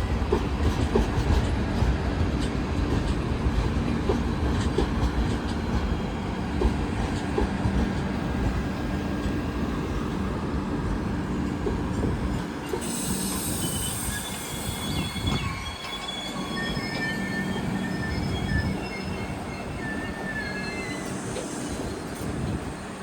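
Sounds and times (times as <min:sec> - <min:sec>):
train rumbling on rails: 0:00.0 - 0:23.0
metal wheel squeals: 0:12.7 - 0:21.9.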